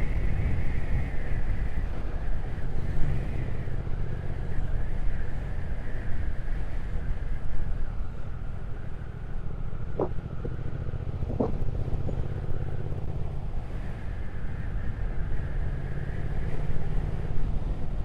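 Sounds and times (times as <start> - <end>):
motorcycle engine cruising: 6.8 - 18.0
wind on microphone: 9.4 - 15.6.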